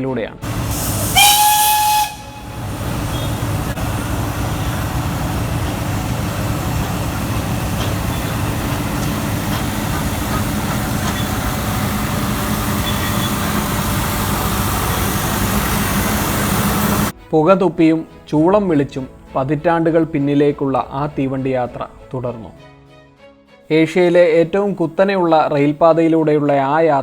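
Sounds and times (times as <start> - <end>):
train whistle: 0.4 - 17.1
train rumbling and clattering: 0.4 - 17.2.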